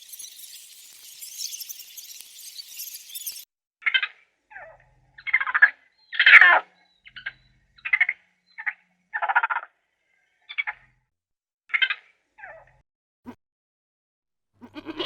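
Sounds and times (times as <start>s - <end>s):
raspy animal calls: 14.6s - 15.0s.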